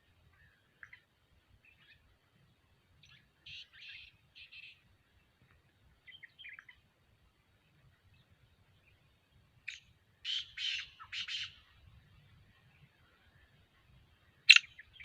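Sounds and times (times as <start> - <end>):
bird chirps and harsh call: 3.0 - 4.8, 9.6 - 11.6, 14.5 - 15.0.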